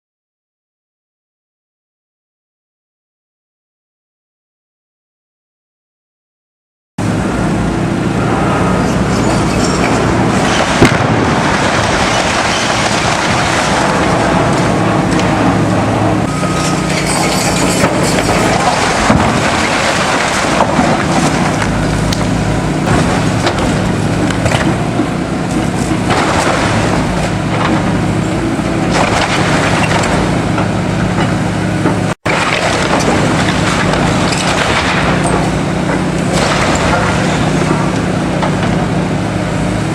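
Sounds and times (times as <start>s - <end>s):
diesel engine running: 7.0s - 39.9s
debris crunching and crashing: 9.1s - 38.9s.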